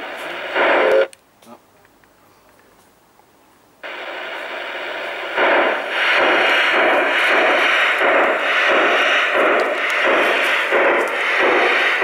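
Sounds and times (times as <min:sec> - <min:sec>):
model steam locomotive chuffing: 0:00.0 - 0:01.1, 0:03.8 - 0:12.0.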